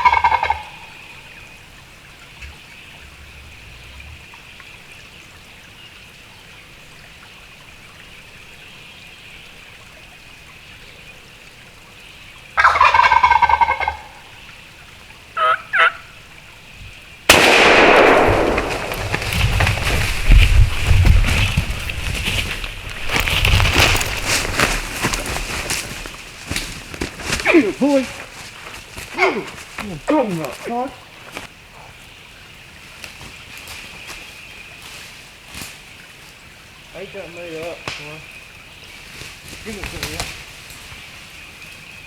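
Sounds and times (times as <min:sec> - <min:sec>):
turkey short high calls: 0:00.0 - 0:00.9, 0:12.6 - 0:14.2, 0:15.4 - 0:16.2
turkey gobbling: 0:00.0 - 0:01.1, 0:12.6 - 0:14.4, 0:15.4 - 0:16.2
loud blast: 0:17.3 - 0:19.7.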